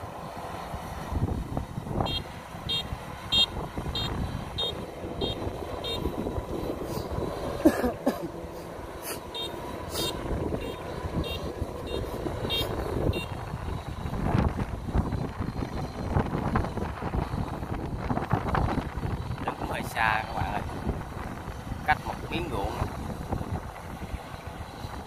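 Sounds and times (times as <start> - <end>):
combine harvester engine: 0.0 - 25.0
short electronic beeps: 2.1 - 6.1.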